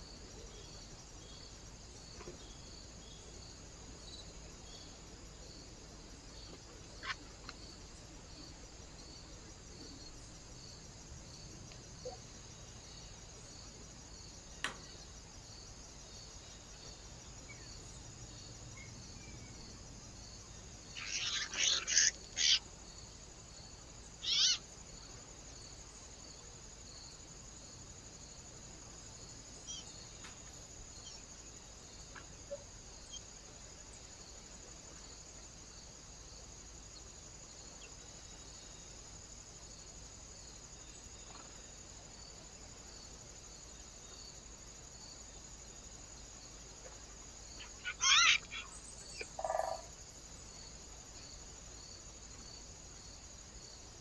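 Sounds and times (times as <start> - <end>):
short bird calls: 21.0 - 22.6, 24.2 - 24.6, 47.6 - 49.9.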